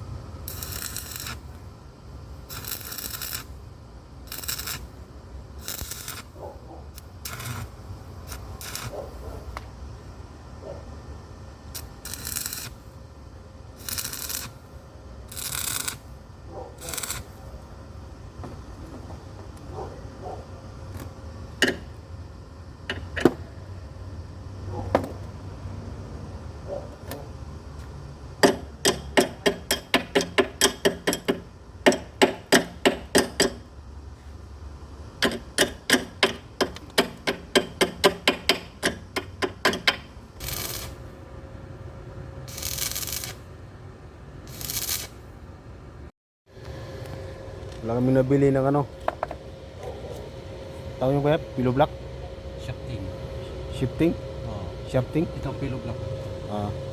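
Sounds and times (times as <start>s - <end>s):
hammer striking metal: 28.4s - 33.7s, 35.2s - 40.1s.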